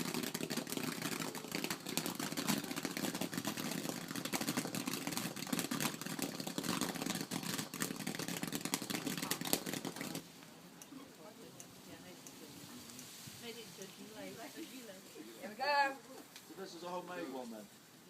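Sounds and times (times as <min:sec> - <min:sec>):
bonfire crackling and popping: 0:00.0 - 0:10.5.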